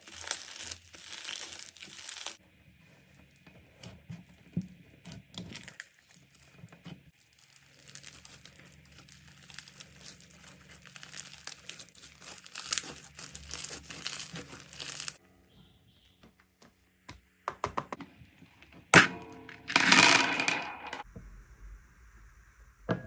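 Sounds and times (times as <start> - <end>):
slime squeezed by hand crackling: 0.0 - 2.4, 7.2 - 15.2.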